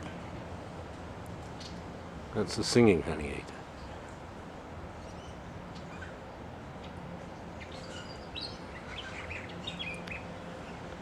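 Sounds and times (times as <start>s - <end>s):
steady background hum: 0.0s - 11.0s
small birds chirping: 5.0s - 10.9s.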